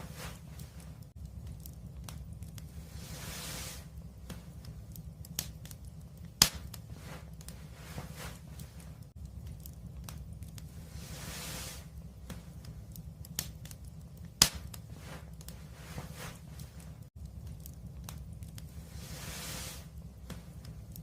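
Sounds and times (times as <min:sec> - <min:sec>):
steady low rumble: 0:00.0 - 0:21.0
wood fire crackling: 0:00.0 - 0:21.0
rushes of hiss: 0:02.7 - 0:04.0, 0:10.7 - 0:11.9, 0:18.7 - 0:20.0
sharp pops: 0:05.3 - 0:06.8, 0:13.3 - 0:15.2.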